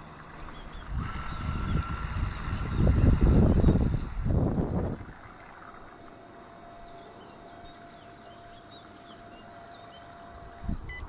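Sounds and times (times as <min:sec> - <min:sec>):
small birds chirping: 0:00.0 - 0:11.0
thin steady tone: 0:05.1 - 0:11.0.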